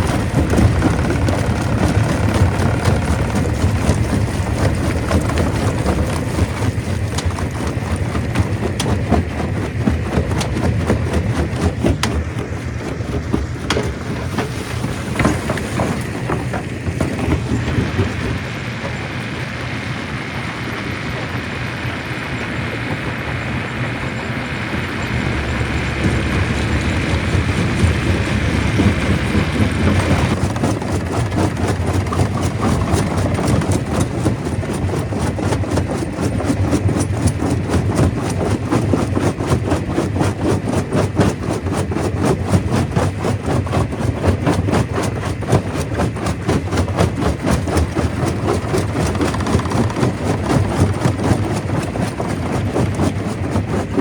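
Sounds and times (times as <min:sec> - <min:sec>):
stone crusher running: 0:00.0 - 0:20.0, 0:24.2 - 0:54.0.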